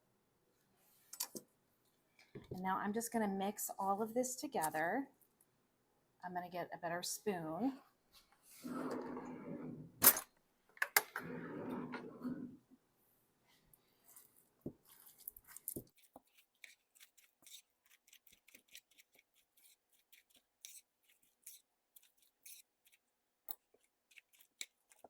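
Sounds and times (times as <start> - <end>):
spoon stirring thick mixture in bowl: 14.2 - 25.0.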